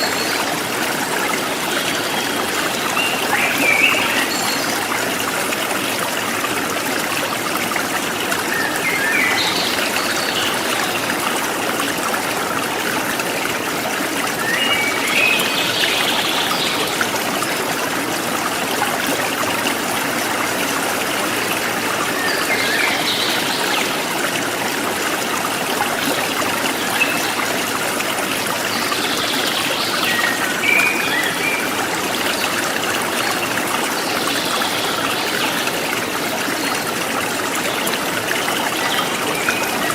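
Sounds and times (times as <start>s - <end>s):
river water flowing over stones: 0.0s - 39.9s.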